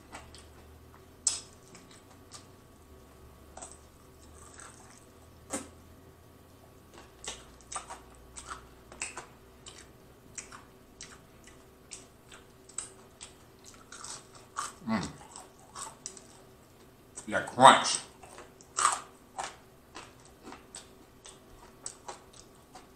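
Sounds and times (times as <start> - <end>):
crunchy chewing: 0.0 - 2.7, 3.5 - 5.8, 6.8 - 17.3, 18.0 - 22.9
wet mouth clicks and smacks: 1.2 - 2.5
person humming mmm: 14.8 - 15.2.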